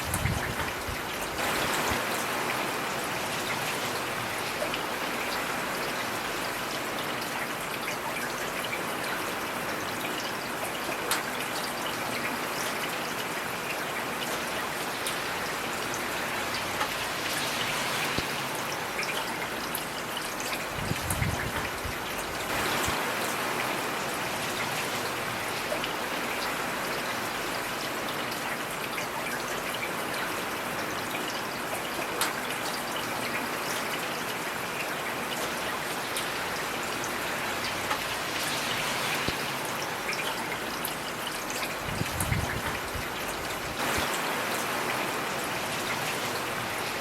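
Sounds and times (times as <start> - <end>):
heavy rain hiss: 0.0 - 7.3, 14.4 - 28.8, 34.4 - 47.0
raindrops ticking on surface: 0.0 - 47.0.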